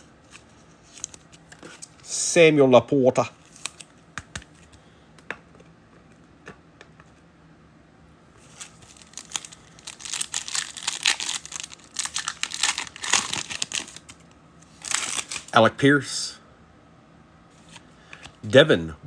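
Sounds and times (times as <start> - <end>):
foil wrapper crinkling and tearing: 3.4 - 3.9, 8.4 - 15.6.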